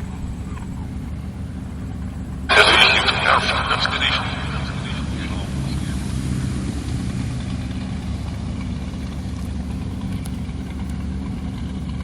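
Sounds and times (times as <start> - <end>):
motor traffic engine drone: 0.0 - 12.0.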